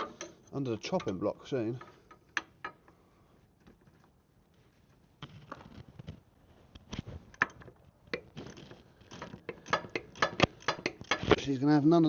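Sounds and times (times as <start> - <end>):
hand tools clicking and knocking: 0.0 - 3.0, 7.3 - 11.4.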